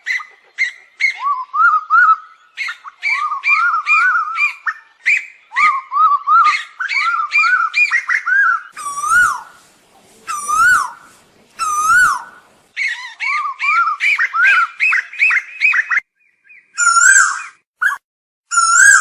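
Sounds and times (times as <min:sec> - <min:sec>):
koel calling: 0:08.8 - 0:15.8.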